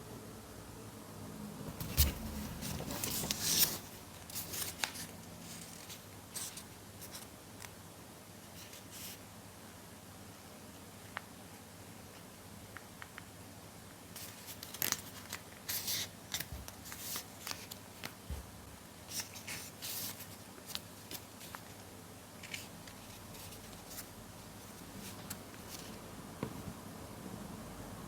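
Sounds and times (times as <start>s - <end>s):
paper rustling and creasing: 1.8s - 7.3s, 14.2s - 18.4s, 22.4s - 26.0s.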